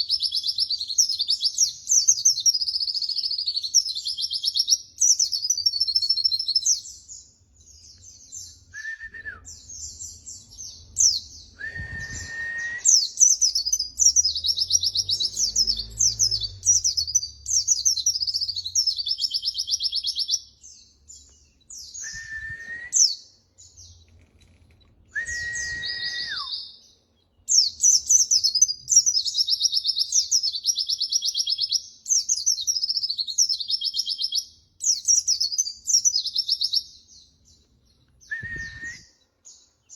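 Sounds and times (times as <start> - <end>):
bird high twittering song: 0.0 - 39.9
bird lower held whistle: 8.7 - 9.6, 11.5 - 13.2, 21.8 - 23.2, 25.1 - 26.8, 38.2 - 39.2.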